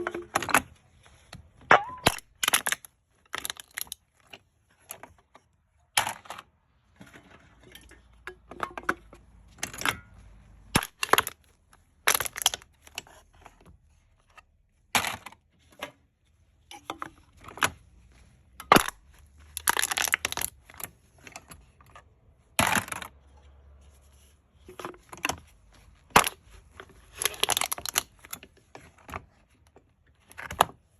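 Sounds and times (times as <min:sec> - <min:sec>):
cans being crushed: 0:01.7 - 0:04.0, 0:10.8 - 0:11.4, 0:12.0 - 0:12.7, 0:18.7 - 0:20.6, 0:27.1 - 0:28.1.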